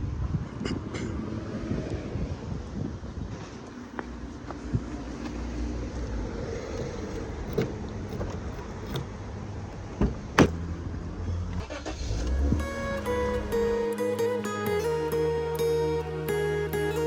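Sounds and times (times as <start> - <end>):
car low rumble: 0.0 - 17.0.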